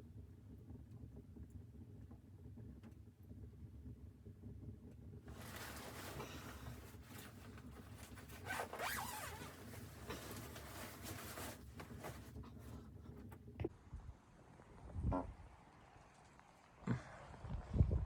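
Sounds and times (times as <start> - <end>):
zipper being pulled: 5.3 - 12.4.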